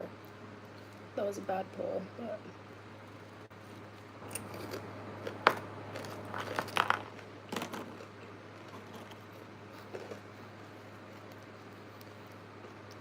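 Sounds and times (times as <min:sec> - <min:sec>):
steady low hum: 0:00.0 - 0:13.0
crunchy bites and chewing: 0:03.8 - 0:13.0.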